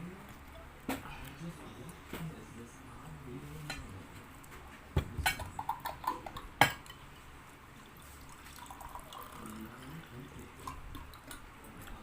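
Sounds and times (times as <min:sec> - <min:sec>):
cutlery clinking against dishes: 0:03.6 - 0:03.9, 0:05.2 - 0:07.0.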